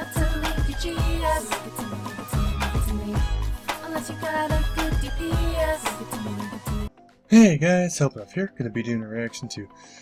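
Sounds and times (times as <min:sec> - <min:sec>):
pop song with singing: 0:00.0 - 0:06.9.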